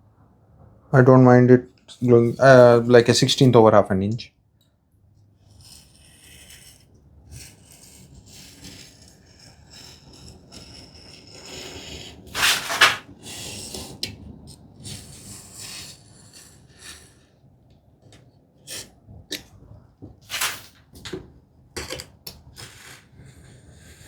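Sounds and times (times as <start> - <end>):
tape rubbing on wood: 5.6 - 14.0, 18.7 - 21.1
tape tearing: 12.3 - 13.1, 20.2 - 21.2.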